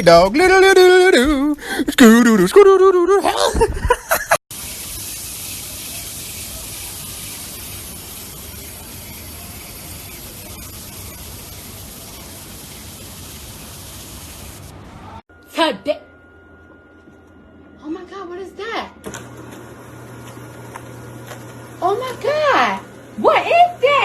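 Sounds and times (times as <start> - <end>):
person singing: 0.2 - 3.5
steady hiss: 4.5 - 14.8.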